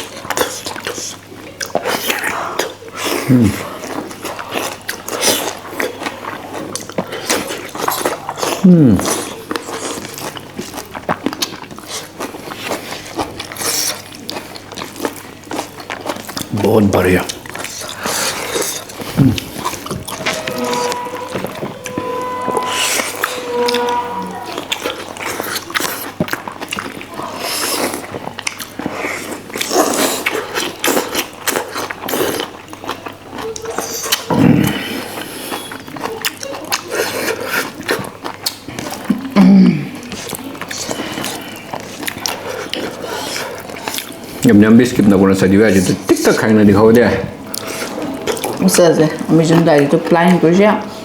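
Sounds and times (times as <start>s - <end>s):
wet chewing and lip-smacking: 0.0s - 20.2s, 24.8s - 44.5s.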